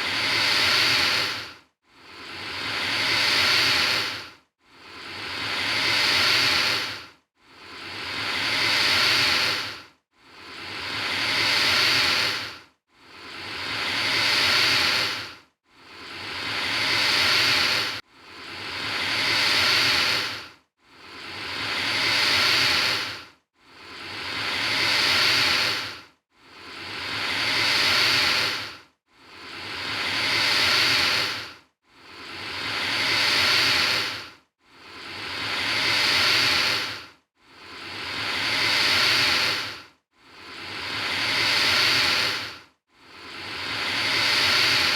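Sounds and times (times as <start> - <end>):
alligator hissing: 0.0 - 1.4, 2.1 - 4.2, 5.0 - 7.0, 7.7 - 9.8, 10.4 - 12.5, 13.3 - 15.3, 16.0 - 20.4, 21.1 - 26.0, 26.6 - 28.7, 29.4 - 34.2, 35.0 - 37.0, 37.7 - 39.8, 40.4 - 42.5, 43.4 - 44.9.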